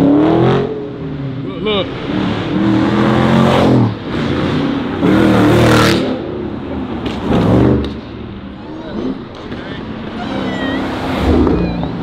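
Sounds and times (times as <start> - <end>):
car engine revving hard: 0.0 - 1.0, 1.8 - 6.4.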